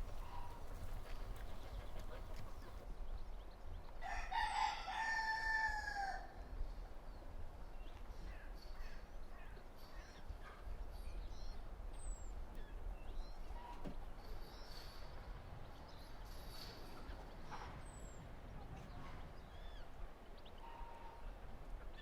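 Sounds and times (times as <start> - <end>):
rooster crowing: 4.0 - 6.3.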